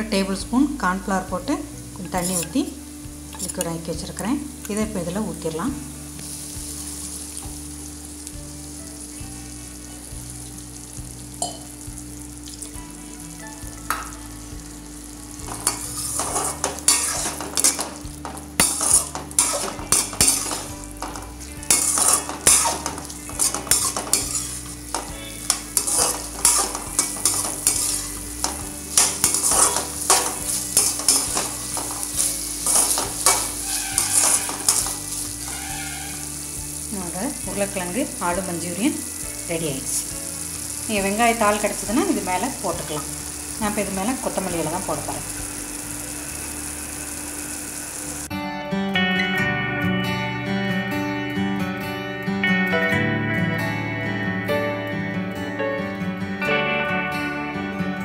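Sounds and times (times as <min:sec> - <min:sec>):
food sizzling in a pan: 0:00.0 - 0:48.3
metal spatula scraping a pan: 0:02.1 - 0:02.7, 0:15.5 - 0:36.5.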